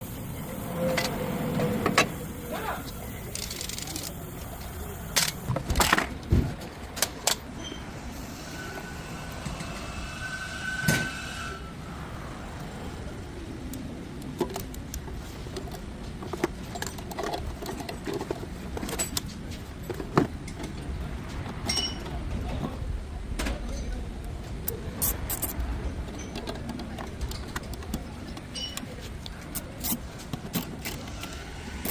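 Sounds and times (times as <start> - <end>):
tools clicking and knocking: 14.3 - 20.8, 24.7 - 31.9.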